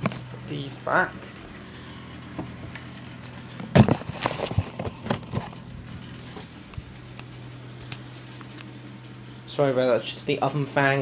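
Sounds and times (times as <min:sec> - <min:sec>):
oven fan humming: 0:00.0 - 0:11.0
objects clattering and knocking: 0:03.6 - 0:05.6.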